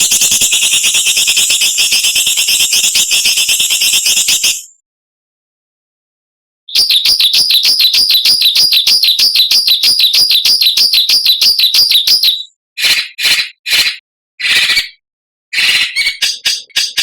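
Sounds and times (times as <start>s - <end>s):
songbird harsh rasping call: 15.6s - 17.0s.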